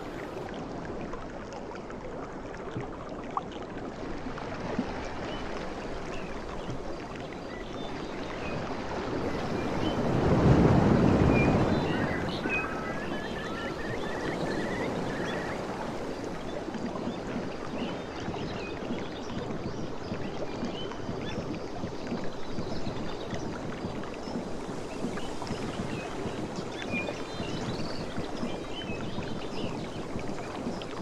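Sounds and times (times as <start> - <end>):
water lapping: 0.0 - 31.0
small birds chirping: 11.4 - 16.1.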